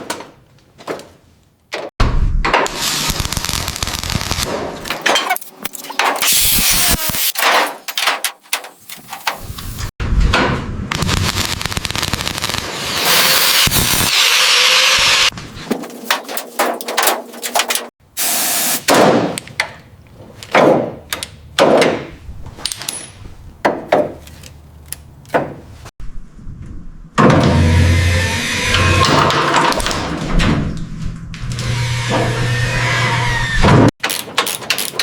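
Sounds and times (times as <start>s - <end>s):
knocks and clattering impacts: 0.0s - 2.7s, 15.3s - 17.9s, 18.9s - 24.5s, 25.2s - 25.9s.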